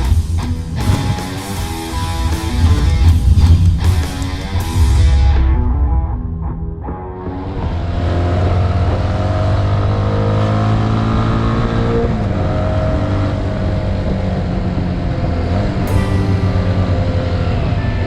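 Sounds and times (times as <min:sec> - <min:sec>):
wind and road noise: 0:00.0 - 0:05.7, 0:07.4 - 0:15.9
motorcycle engine running: 0:00.1 - 0:04.9.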